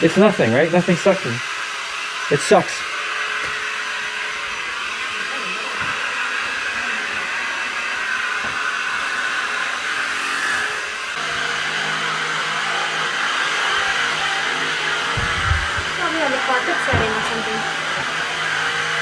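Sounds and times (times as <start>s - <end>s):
vacuum cleaner whirring: 0.0s - 19.0s
low hum: 14.1s - 18.3s.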